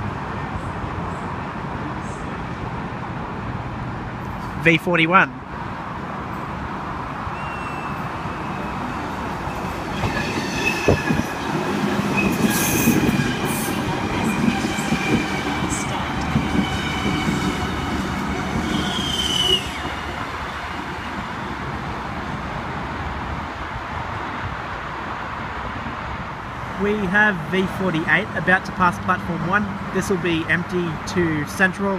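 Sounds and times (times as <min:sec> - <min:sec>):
train wheels squealing: 0:07.3 - 0:11.4, 0:12.1 - 0:13.8, 0:18.7 - 0:20.0
train wheels rumbling on rails: 0:08.2 - 0:22.4.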